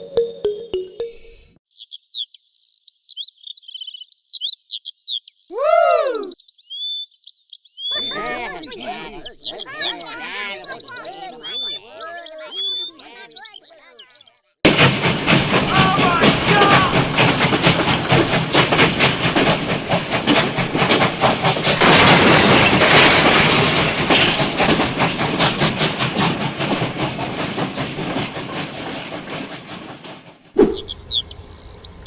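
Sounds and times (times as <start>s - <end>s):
birds chirping: 0.0s - 14.5s, 15.1s - 18.8s, 30.6s - 32.0s
rapid mechanical clattering: 14.7s - 32.0s.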